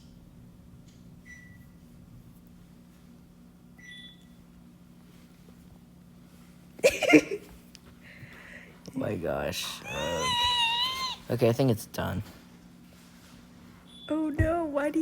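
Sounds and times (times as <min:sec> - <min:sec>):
low electrical hum: 0:00.0 - 0:15.0
brief loud cry: 0:09.8 - 0:11.2.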